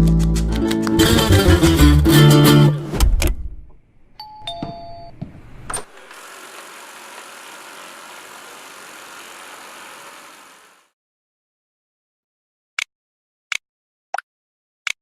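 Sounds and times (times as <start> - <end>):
suction motor hissing: 5.8 - 10.9.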